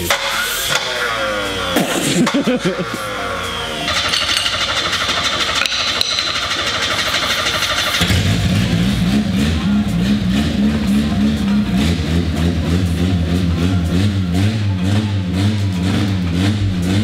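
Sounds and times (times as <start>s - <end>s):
engine running roughly: 0.0s - 17.0s
engine cranking on starter: 0.1s - 9.3s.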